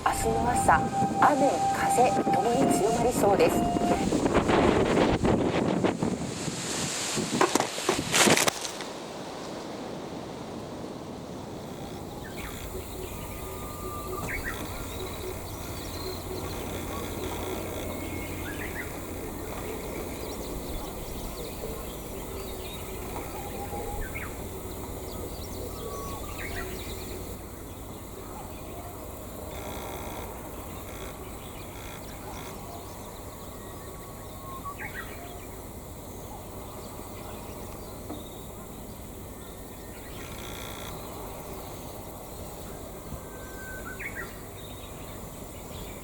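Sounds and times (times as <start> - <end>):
wind rumble on microphone: 0.0 - 28.0.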